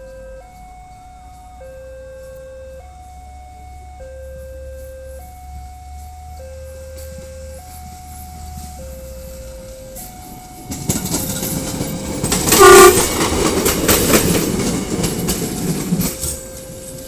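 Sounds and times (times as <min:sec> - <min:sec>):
level crossing alarm chime: 0:00.0 - 0:17.0
railcar wheels clattering: 0:05.5 - 0:17.0
train horn blast: 0:12.4 - 0:13.5.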